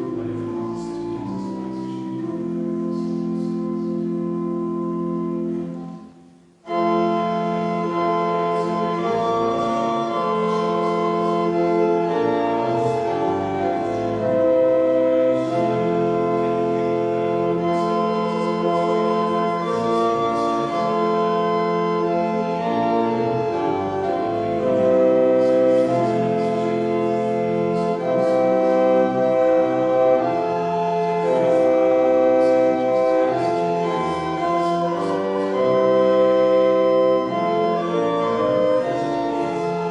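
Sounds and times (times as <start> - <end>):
organ playing sustained chords: 0.0 - 39.9.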